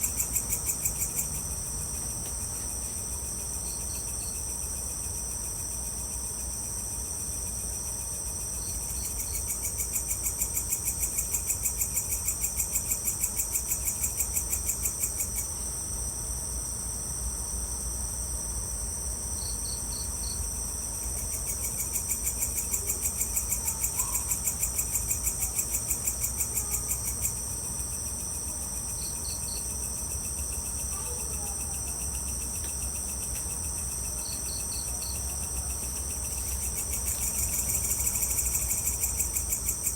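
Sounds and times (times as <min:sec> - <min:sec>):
insect pulsing trill: 0:00.0 - 0:02.0, 0:19.4 - 0:39.9
insects buzzing: 0:00.0 - 0:39.9
insect triple chirps: 0:28.9 - 0:39.9.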